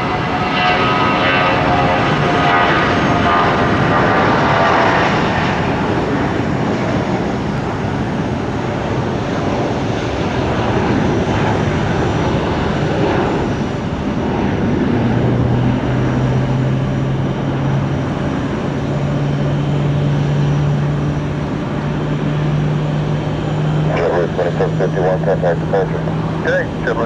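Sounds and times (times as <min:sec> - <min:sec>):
aircraft engines rushing: 0:00.0 - 0:27.0
low drone rising in pitch: 0:12.5 - 0:27.0.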